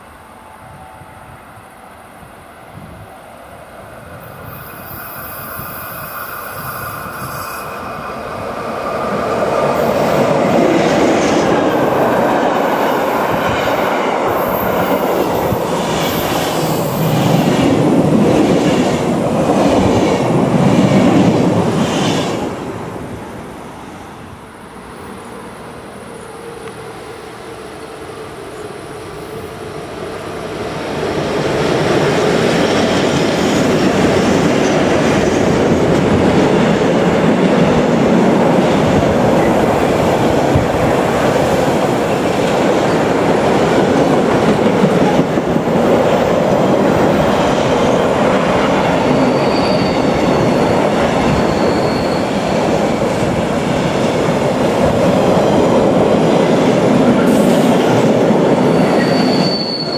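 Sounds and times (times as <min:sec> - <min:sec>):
train wheels rumbling on rails: 0:04.1 - 0:59.9
wheel squeals: 0:49.0 - 0:52.6, 0:58.6 - 0:59.9.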